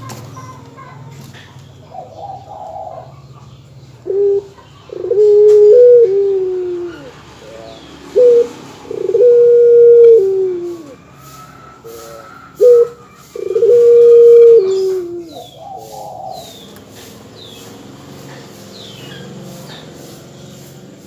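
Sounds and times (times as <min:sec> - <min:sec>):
dove cooing: 0:01.9 - 0:17.0.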